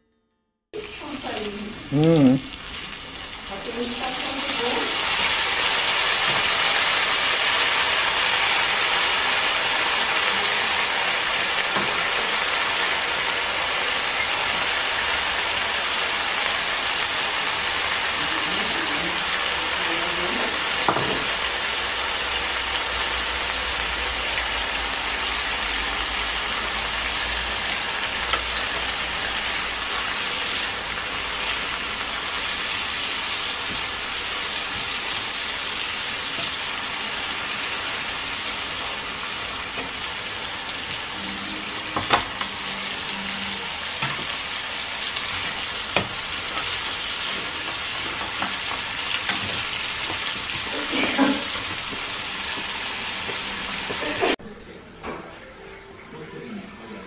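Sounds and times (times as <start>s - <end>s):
food sizzling in wok: 0.8s - 54.4s.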